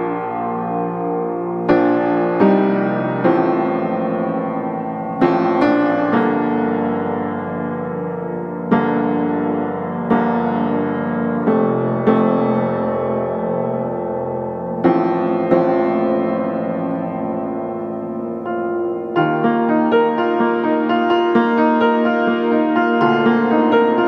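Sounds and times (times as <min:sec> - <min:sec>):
slow piano chords: 0:00.0 - 0:24.0.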